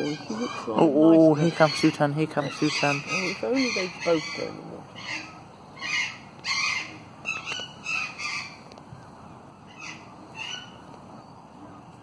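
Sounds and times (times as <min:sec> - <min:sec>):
bird rough calls: 0:00.0 - 0:11.9.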